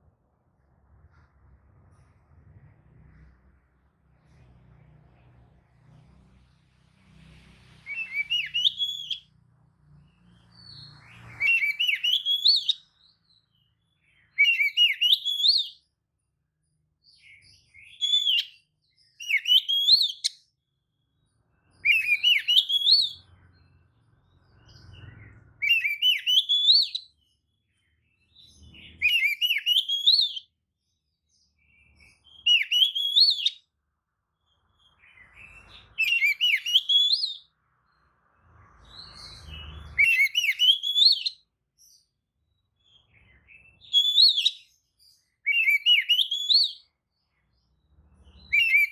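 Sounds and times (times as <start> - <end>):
bird singing warbling phrases: 7.9 - 9.2, 10.5 - 15.8, 17.1 - 20.4, 21.8 - 23.3, 24.6 - 27.3, 28.4 - 30.4, 31.6 - 33.6, 34.5 - 38.0, 38.9 - 42.0, 42.7 - 47.3, 48.2 - 48.9.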